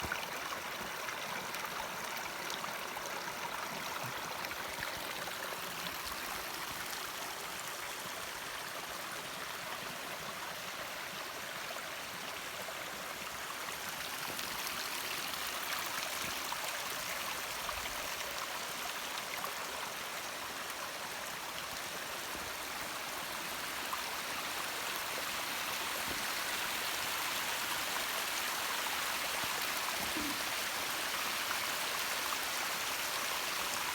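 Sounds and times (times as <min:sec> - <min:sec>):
stream flowing water: 0:00.0 - 0:33.9.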